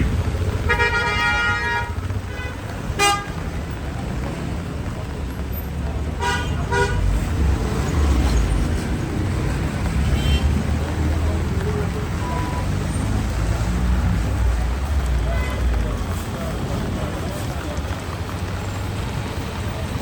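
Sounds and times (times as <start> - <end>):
low rumble of engines: 0.0 - 20.0
vehicle horns honking: 0.6 - 3.5, 6.2 - 7.2, 10.0 - 10.7.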